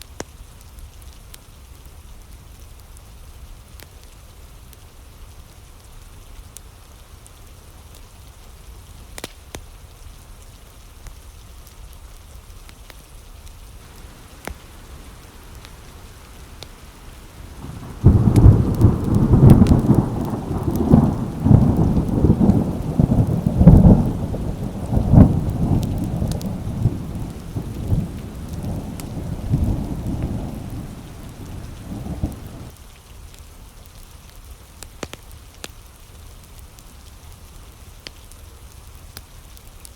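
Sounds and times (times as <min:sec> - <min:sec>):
fireplace crackles: 0:13.8 - 0:32.7
rain drumming on window glass: 0:13.8 - 0:32.7
thunder rumbling: 0:13.8 - 0:32.7.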